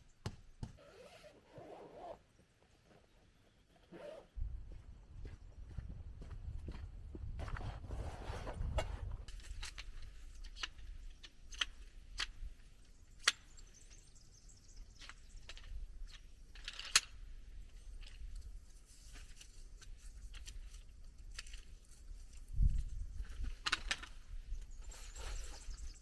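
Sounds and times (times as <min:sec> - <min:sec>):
camping gear clinking: 0:00.8 - 0:04.3.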